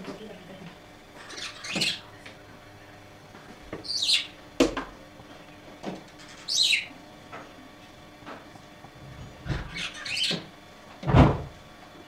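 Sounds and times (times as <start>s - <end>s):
bird calling: 1.2s - 2.1s, 3.8s - 4.4s, 6.3s - 7.0s, 9.6s - 10.5s.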